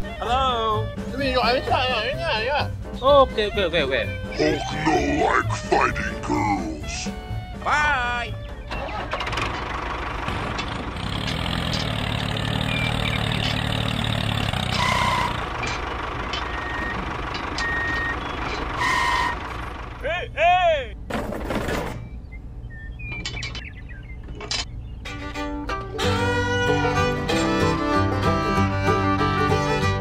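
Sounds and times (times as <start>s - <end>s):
engine running: 8.3s - 20.1s, 23.2s - 30.0s
rising and falling squeals: 11.5s - 19.8s.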